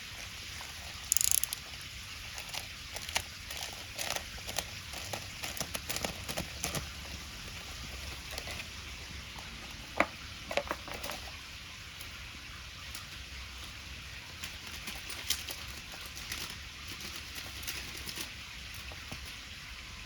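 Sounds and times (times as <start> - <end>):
wood fire crackling: 0.9 - 10.4.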